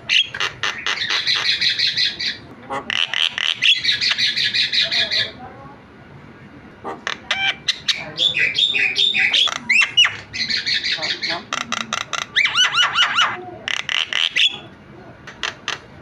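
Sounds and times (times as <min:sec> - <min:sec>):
bird whistles and squawks: 0:00.1 - 0:05.4, 0:07.1 - 0:14.7
myna chattering: 0:06.8 - 0:15.9.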